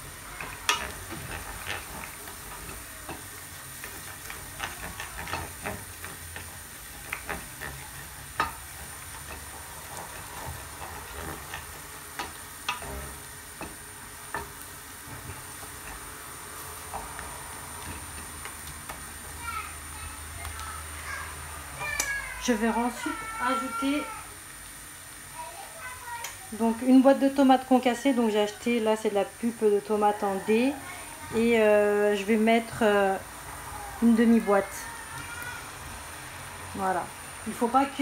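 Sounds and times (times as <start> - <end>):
wooden spatula scraping a pot: 0.0 - 19.4
food sizzling in oil: 0.0 - 38.0.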